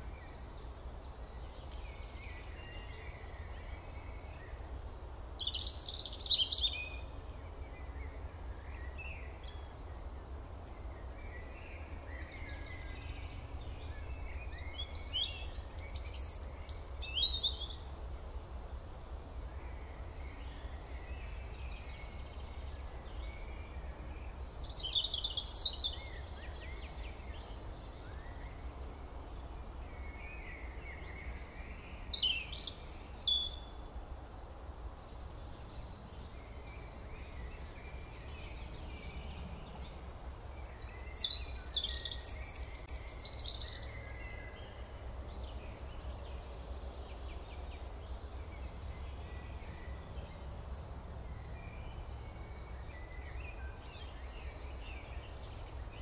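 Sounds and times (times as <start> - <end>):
birds chirping: 19.3 - 56.0.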